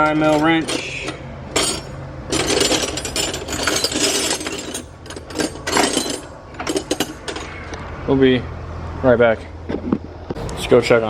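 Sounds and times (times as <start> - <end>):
metal hand tools clattering: 0.0 - 7.6.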